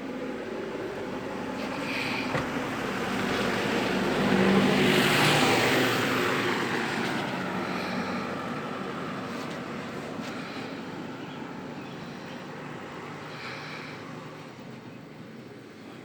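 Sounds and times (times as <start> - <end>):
vehicle passing by: 0.6 - 14.7.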